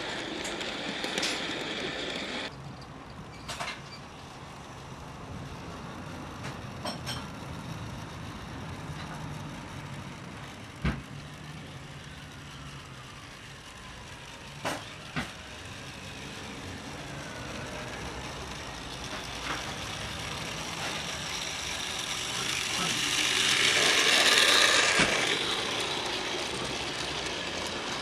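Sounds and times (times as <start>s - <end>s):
model train motor hum: 0.0s - 28.0s.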